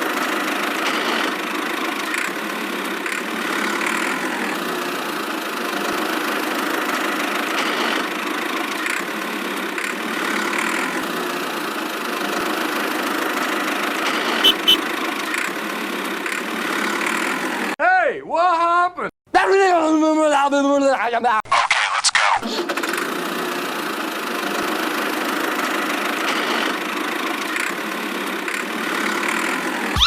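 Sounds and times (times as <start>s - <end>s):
engine running steadily: 14.4s - 14.8s.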